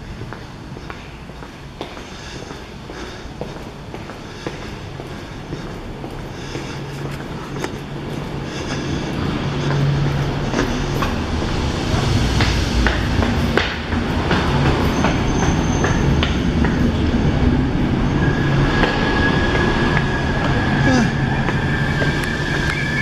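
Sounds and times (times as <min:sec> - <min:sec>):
train rumbling: 0:00.0 - 0:23.0
high steady squeal: 0:14.7 - 0:23.0.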